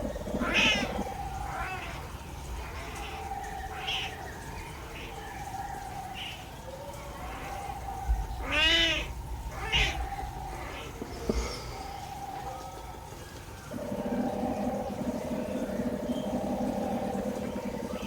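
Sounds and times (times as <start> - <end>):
birds trilling and chirping: 0.0 - 18.0
cat-like mewing bird call: 0.4 - 5.2, 7.2 - 11.4.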